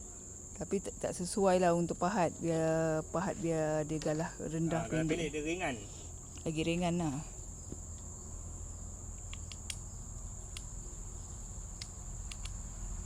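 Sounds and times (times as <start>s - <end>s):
insects droning: 0.0s - 13.0s
faint clicks: 11.8s - 12.6s.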